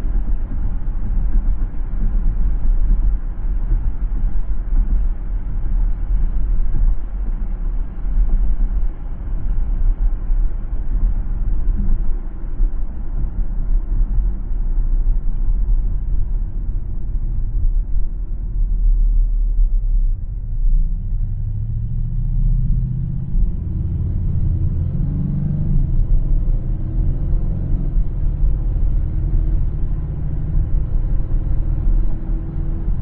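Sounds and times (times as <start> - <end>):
car driving on road: 0.0 - 33.0.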